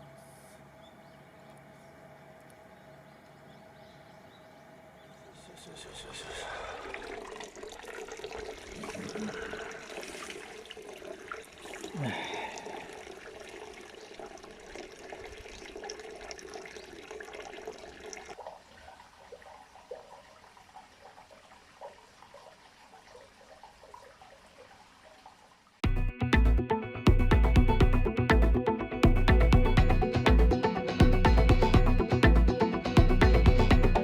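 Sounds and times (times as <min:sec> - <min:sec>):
water running and splashing: 0:05.7 - 0:25.8.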